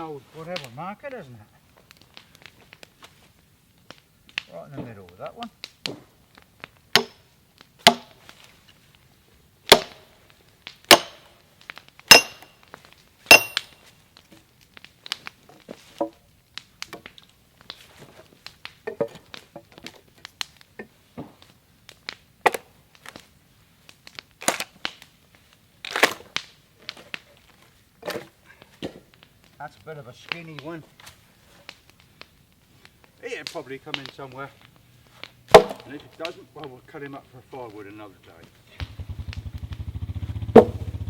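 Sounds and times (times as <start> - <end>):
sledgehammer striking steel wedge: 7.8 - 8.2, 9.7 - 10.1, 10.9 - 11.3, 12.1 - 12.5, 13.3 - 13.7, 24.4 - 24.6, 35.5 - 35.9, 40.6 - 40.9.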